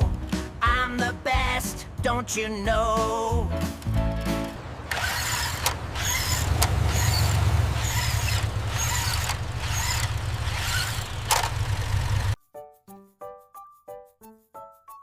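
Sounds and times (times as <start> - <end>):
car engine rumbling: 3.8 - 12.4.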